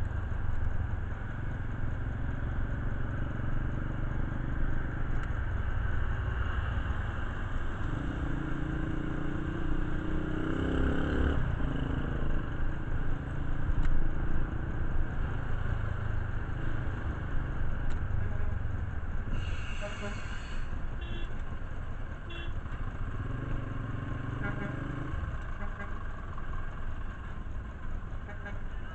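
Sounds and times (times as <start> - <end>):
motorcycle engine running: 21.0 - 28.9.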